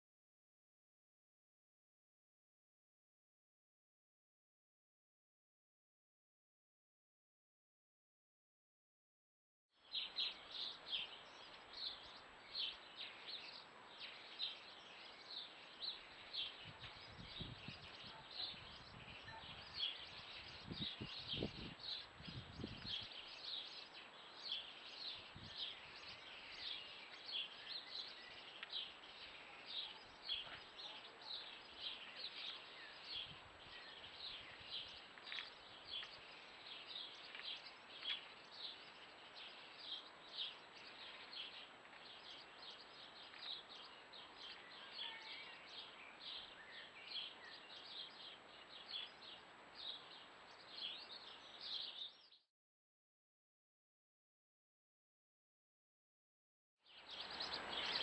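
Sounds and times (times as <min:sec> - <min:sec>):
small birds chirping: 0:09.8 - 0:52.4, 0:56.8 - 0:58.0.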